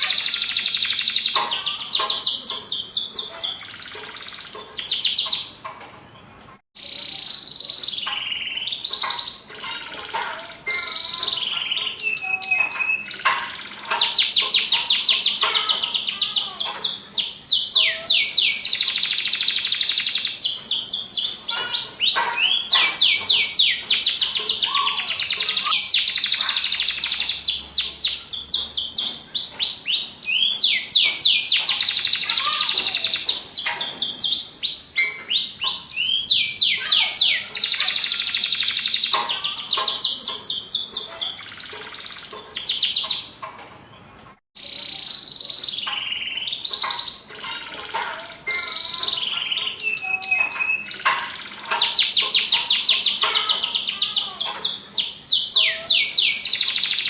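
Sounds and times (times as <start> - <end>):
canary singing trilled phrases: 0.0 - 57.0.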